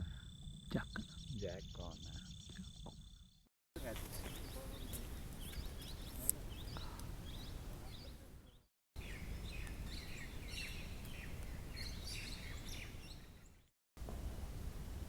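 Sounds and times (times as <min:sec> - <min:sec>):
wild birds chirping: 0:00.0 - 0:13.7
low rumble of wind: 0:03.8 - 0:15.0.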